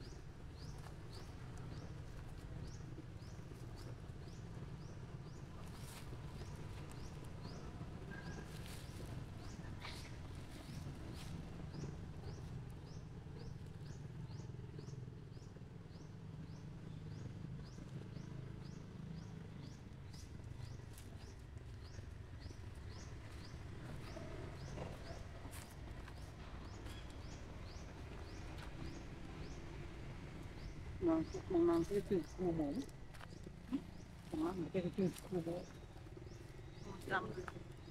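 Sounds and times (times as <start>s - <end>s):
low outdoor rumble: 0.0s - 37.9s
bird chirping: 11.7s - 37.9s.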